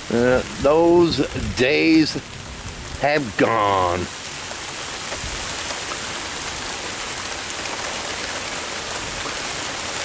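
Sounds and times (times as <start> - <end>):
heavy rain falling: 0.0 - 10.0
drops ticking on umbrella: 4.5 - 6.3.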